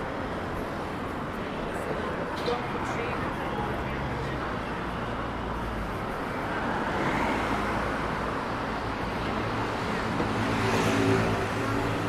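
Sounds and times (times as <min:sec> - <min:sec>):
road noise: 0:00.0 - 0:12.0
cars passing: 0:06.3 - 0:12.0.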